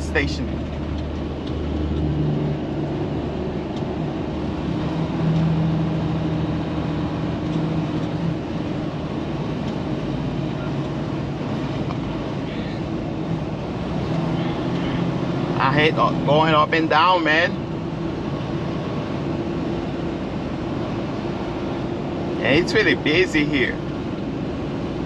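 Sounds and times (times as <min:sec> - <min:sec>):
diesel truck engine drone: 0:00.0 - 0:25.0.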